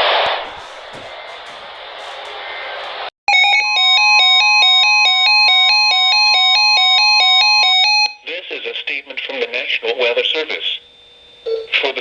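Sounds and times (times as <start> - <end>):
radio static hiss: 0.0 - 3.1, 8.3 - 11.0.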